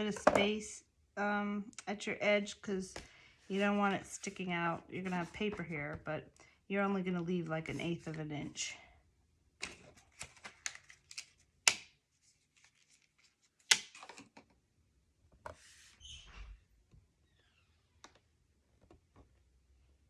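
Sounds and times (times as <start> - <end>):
paper and tape rustling: 12.1 - 14.2.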